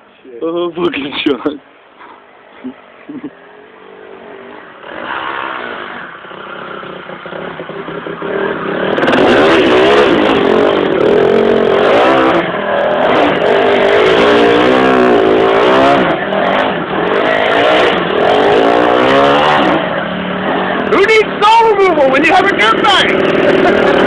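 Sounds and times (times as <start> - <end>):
dirt bike engine revving: 3.3 - 24.0.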